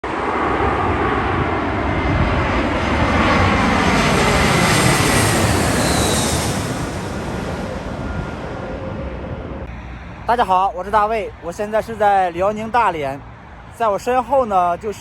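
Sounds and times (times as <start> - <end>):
airliner engines roaring: 0.0 - 15.0
high whine gliding down: 0.1 - 12.8.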